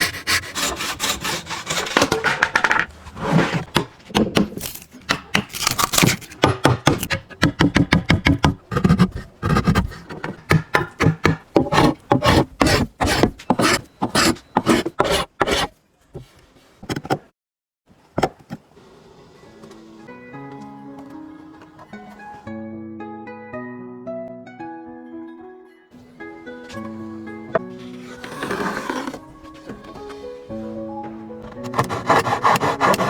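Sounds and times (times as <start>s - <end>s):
rasp scraping wood: 0.0s - 16.3s, 27.5s - 30.6s, 31.4s - 33.0s.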